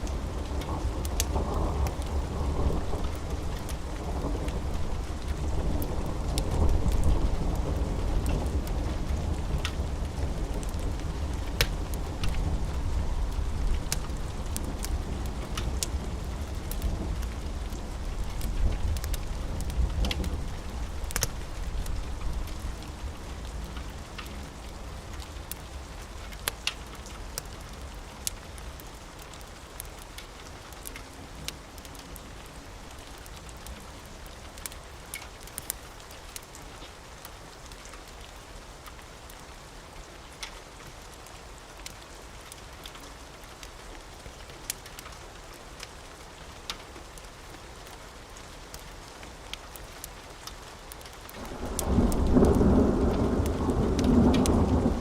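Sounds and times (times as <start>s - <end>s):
steady rain: 0.0s - 55.0s
wood fire crackling: 0.0s - 55.0s
low thunder rumble: 51.4s - 55.0s.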